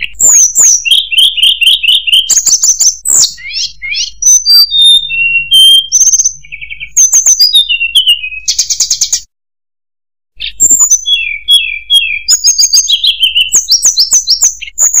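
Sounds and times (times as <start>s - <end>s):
flycatcher singing: 0.0s - 9.3s, 10.4s - 15.0s.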